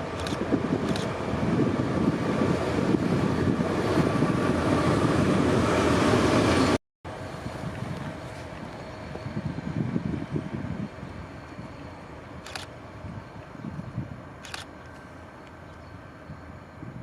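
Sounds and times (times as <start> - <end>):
diesel locomotive rumbling: 0.0 - 17.0.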